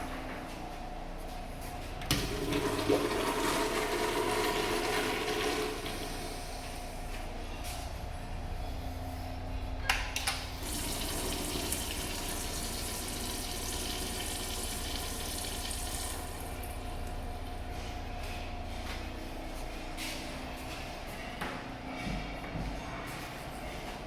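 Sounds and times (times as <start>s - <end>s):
water rushing from tap: 10.6s - 17.2s.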